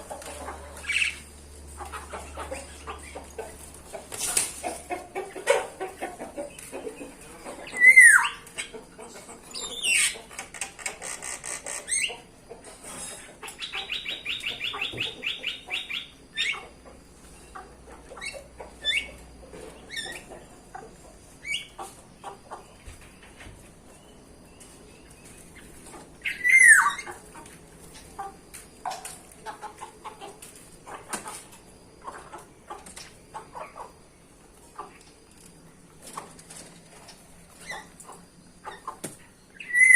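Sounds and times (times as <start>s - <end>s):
bird chirps: 13.5s - 16.7s, 23.9s - 27.2s, 37.6s - 39.9s.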